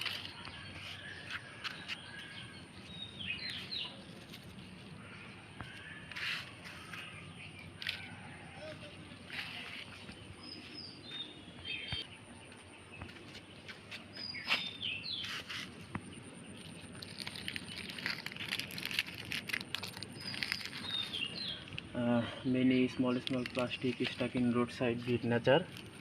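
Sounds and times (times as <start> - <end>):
plastic litter rustling and crinkling: 0.0 - 4.9, 16.6 - 21.9, 22.9 - 26.0
small birds chirping: 0.0 - 26.0.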